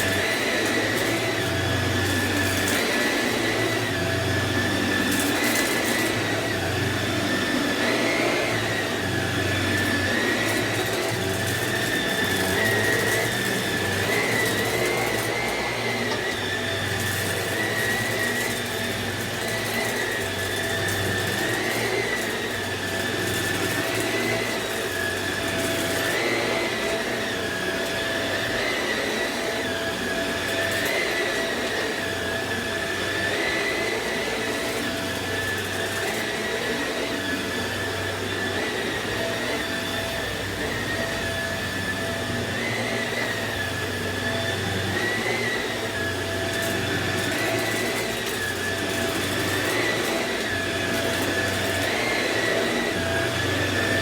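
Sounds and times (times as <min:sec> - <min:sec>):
upright vacuum cleaner running: 0:00.0 - 0:54.0.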